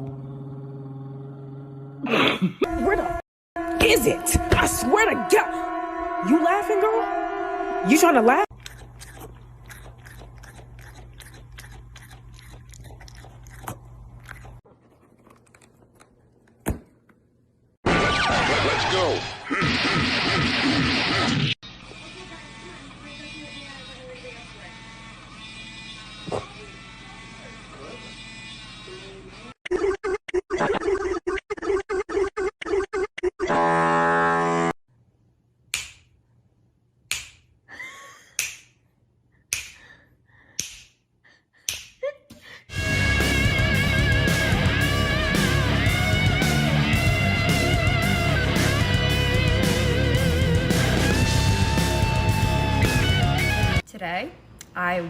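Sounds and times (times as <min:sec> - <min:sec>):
crunchy chewing and biting: 0:08.5 - 0:17.3
sharp slaps or knocks: 0:35.8 - 0:36.1, 0:37.1 - 0:37.5, 0:40.6 - 0:41.0.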